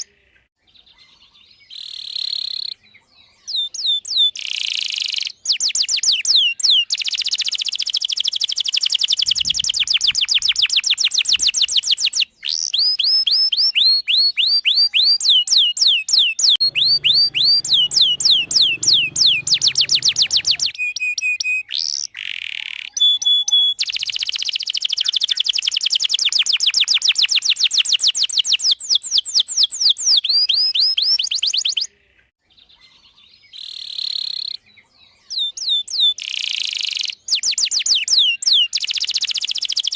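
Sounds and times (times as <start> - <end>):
canary singing trills: 0.0 - 31.9, 32.5 - 39.9.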